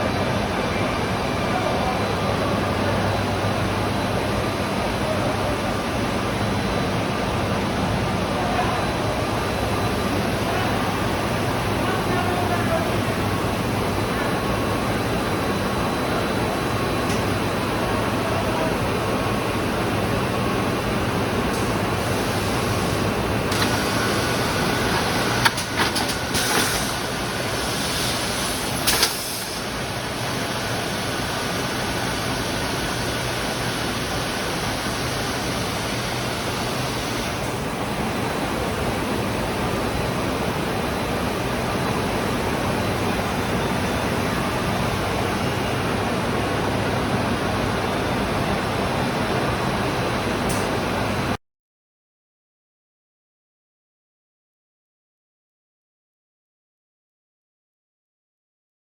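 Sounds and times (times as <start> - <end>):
drilling machine humming: 21.0 - 37.1.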